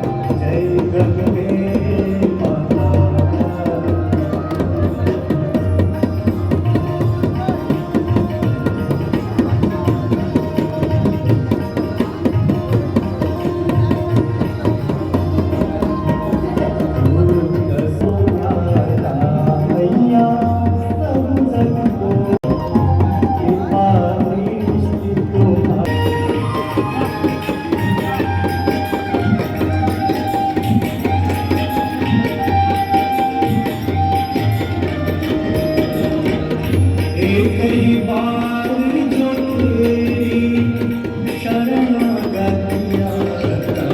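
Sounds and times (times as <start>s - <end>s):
tabla drumming: 0.0s - 43.9s.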